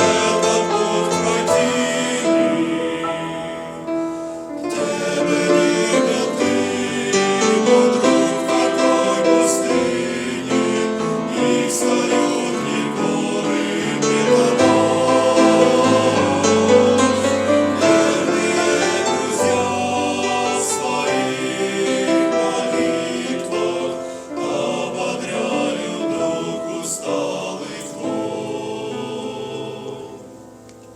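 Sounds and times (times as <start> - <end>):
choir singing with instruments: 0.0 - 30.6.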